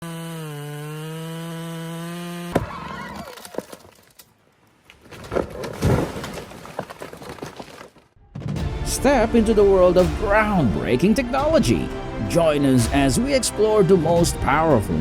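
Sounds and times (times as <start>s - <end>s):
chainsaw running at high revs: 0.0s - 2.6s
irregular cracks and knocks: 2.5s - 8.6s.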